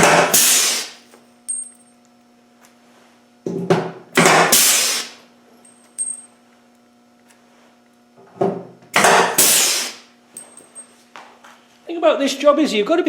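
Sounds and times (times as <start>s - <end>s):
pneumatic tool air hissing: 0.0s - 1.0s, 4.2s - 5.2s, 9.0s - 10.1s.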